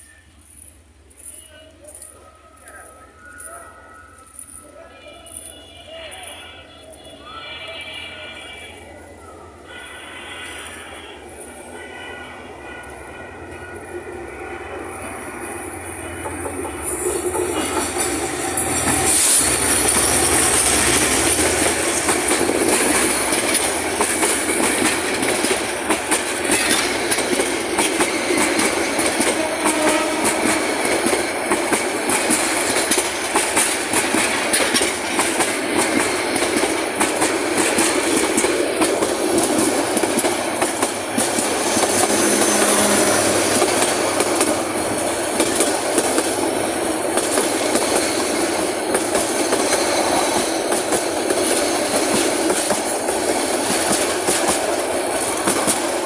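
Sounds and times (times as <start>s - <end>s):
high wheel squeal: 15.8s - 21.4s
train wheels clattering over rail joints: 16.1s - 56.0s.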